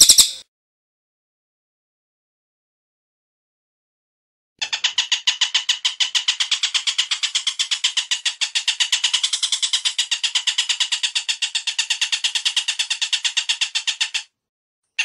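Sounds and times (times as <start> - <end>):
bird call of sharp high notes: 0.0 - 0.4.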